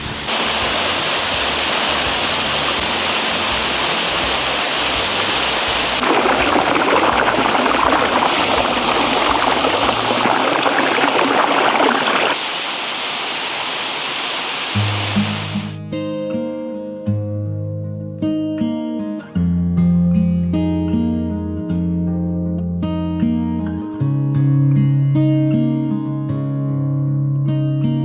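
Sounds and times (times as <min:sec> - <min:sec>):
waterfall rushing: 0:00.0 - 0:15.8.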